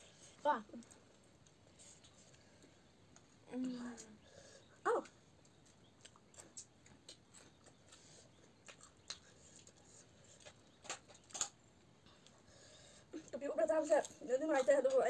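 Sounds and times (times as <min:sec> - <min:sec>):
chewing and lip-smacking: 0:05.0 - 0:12.4.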